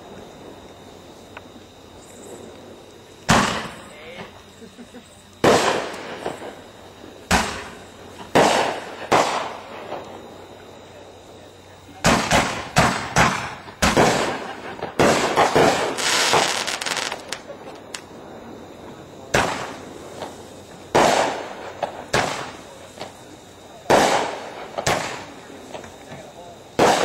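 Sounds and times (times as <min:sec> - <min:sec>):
fireworks bangs echoing: 0:03.2 - 0:04.3, 0:05.4 - 0:10.4, 0:12.0 - 0:18.2, 0:18.9 - 0:23.1, 0:23.8 - 0:27.0.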